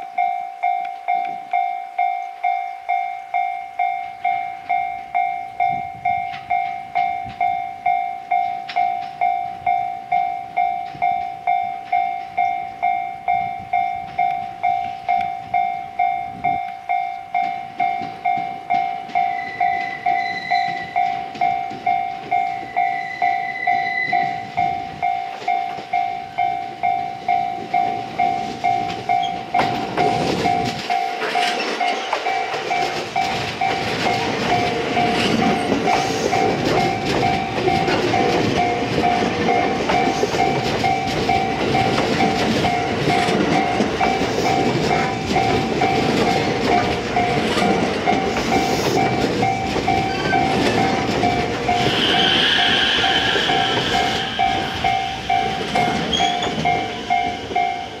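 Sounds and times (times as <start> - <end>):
electric train passing: 0.0 - 58.0
high whine from train: 0.0 - 58.0
level crossing warning bell: 0.0 - 58.0
wheels clicking over rail joints: 16.4 - 26.4, 27.1 - 52.0, 53.4 - 58.0.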